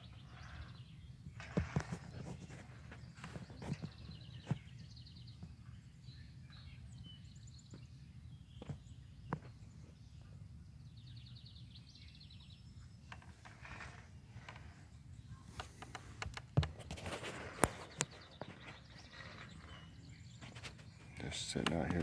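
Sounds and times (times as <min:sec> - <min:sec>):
outdoor background noise: 0:00.0 - 0:22.0
bird trilling: 0:17.0 - 0:22.0.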